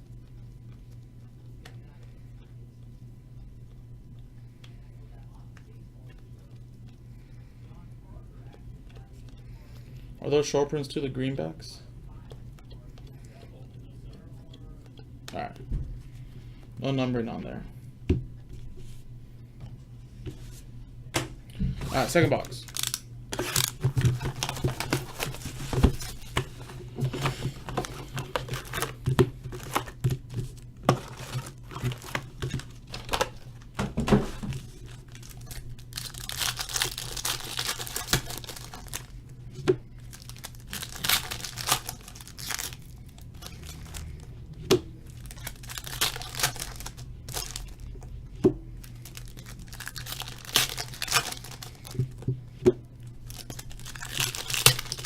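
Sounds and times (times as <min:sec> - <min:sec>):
low steady hum: 0:00.0 - 0:55.0
foil wrappers tearing and crinkling: 0:21.9 - 0:33.5, 0:34.2 - 0:39.2, 0:40.0 - 0:44.3, 0:45.0 - 0:48.0, 0:48.8 - 0:52.2, 0:53.2 - 0:55.0.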